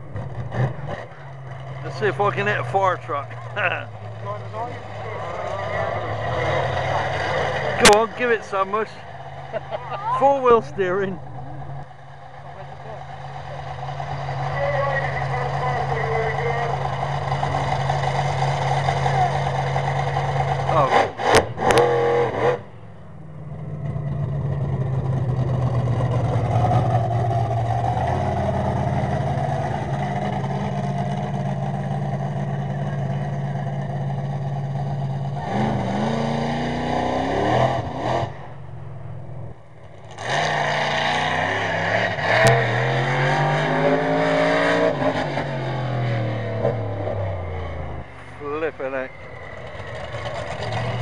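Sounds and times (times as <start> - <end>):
monster truck engine revving: 0.0 - 51.0.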